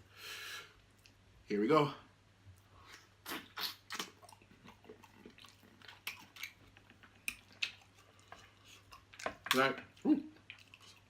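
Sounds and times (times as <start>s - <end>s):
wet chewing and smacking: 2.6s - 11.0s.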